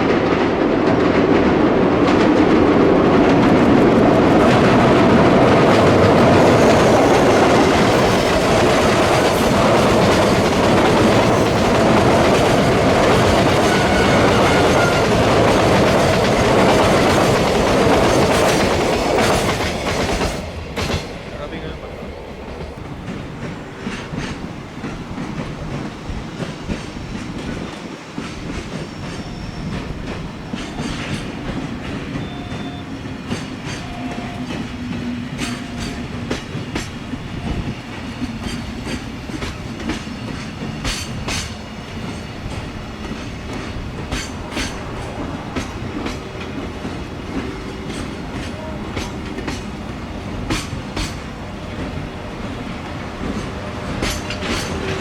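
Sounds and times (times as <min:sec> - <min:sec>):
train rumbling past: 0:00.0 - 0:55.0
wheels clicking over rail joints: 0:22.4 - 0:55.0.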